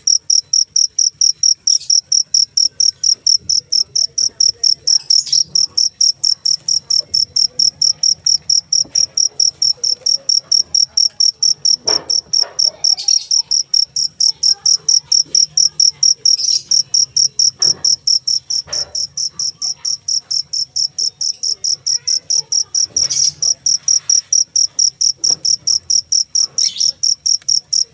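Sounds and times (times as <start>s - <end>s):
cricket chirping: 0.0s - 27.9s
faint knocks: 16.7s - 20.4s.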